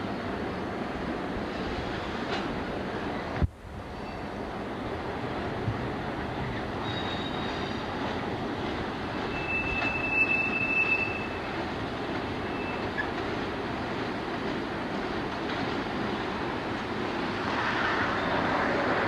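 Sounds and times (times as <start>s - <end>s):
freight train wheels rumbling: 0.0s - 19.0s
high wheel squeal: 6.8s - 7.9s, 9.3s - 11.4s.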